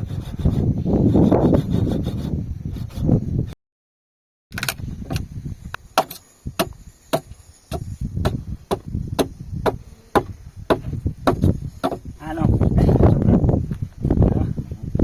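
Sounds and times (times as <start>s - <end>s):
hand tool chopping blows: 6.0s - 12.1s.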